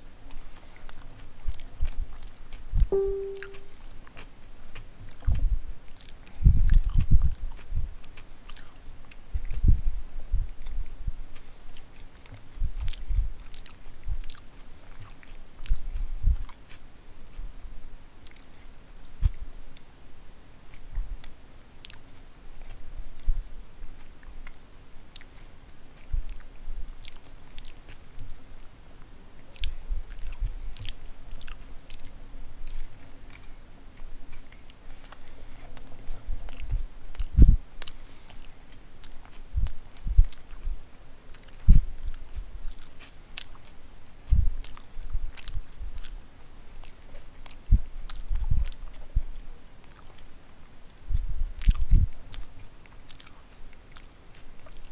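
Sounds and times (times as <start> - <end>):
wet mouth clicks: 11.4 - 15.8, 24.0 - 28.4, 29.5 - 33.5, 34.4 - 46.2, 51.6 - 54.9.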